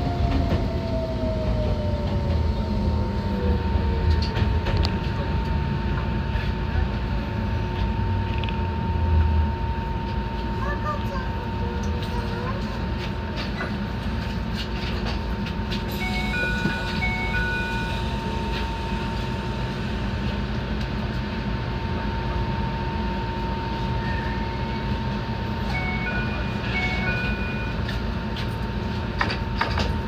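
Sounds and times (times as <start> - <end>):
rail clicks: 0.0 - 6.1
train motor and wheel rumble: 0.0 - 30.0.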